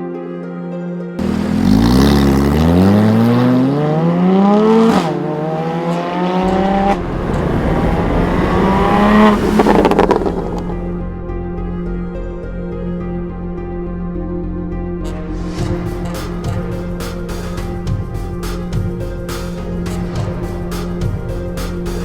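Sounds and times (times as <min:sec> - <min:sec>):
sports car engine accelerating: 0:01.2 - 0:11.4
exhaust pops crackling: 0:04.8 - 0:11.0.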